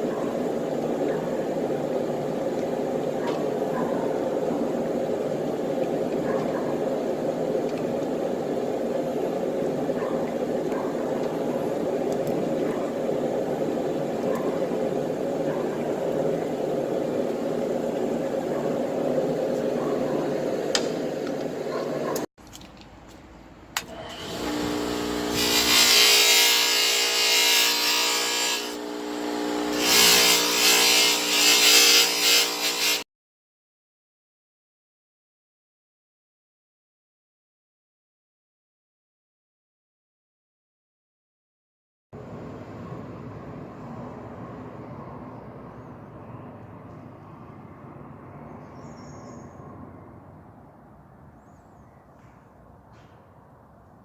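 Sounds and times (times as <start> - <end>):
grinder motor hum: 23.8 - 33.0
steady machine noise: 23.9 - 33.0
grinding hiss: 24.1 - 33.0.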